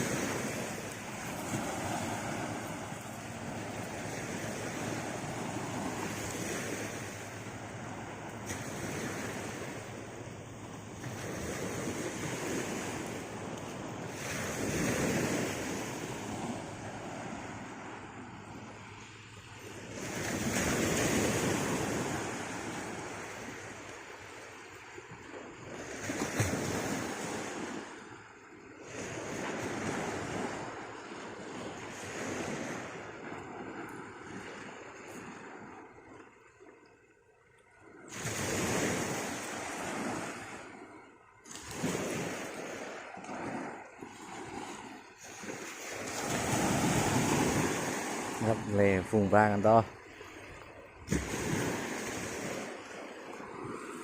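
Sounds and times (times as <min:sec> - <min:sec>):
surf washing onto beach: 0:00.0 - 0:37.0, 0:37.9 - 0:54.0.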